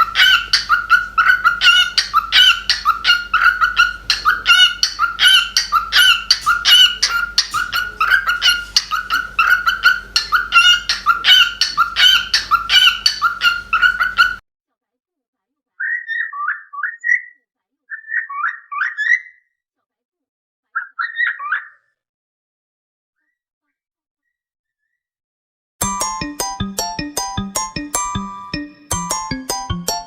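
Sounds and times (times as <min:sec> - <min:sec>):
cockatiel chirping: 0:00.0 - 0:14.4.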